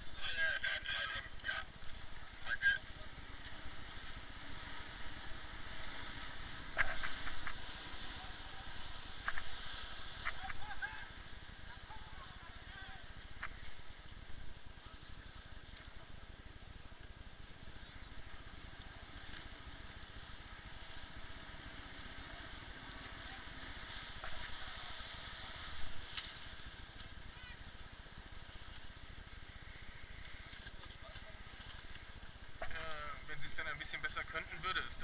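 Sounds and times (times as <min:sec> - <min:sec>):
water hiss: 0:01.7 - 0:14.2, 0:17.4 - 0:33.2.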